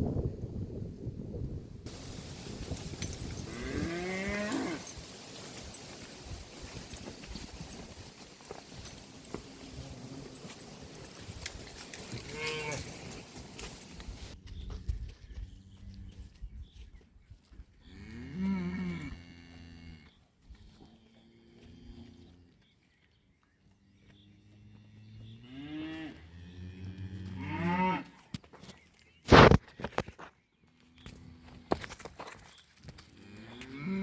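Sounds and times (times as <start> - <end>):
cattle mooing: 12.2 - 13.0.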